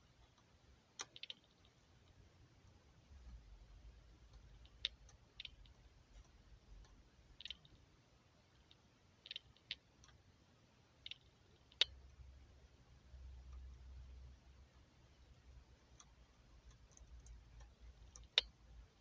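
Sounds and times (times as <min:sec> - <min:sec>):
light clicks and taps: 0:15.2 - 0:19.0.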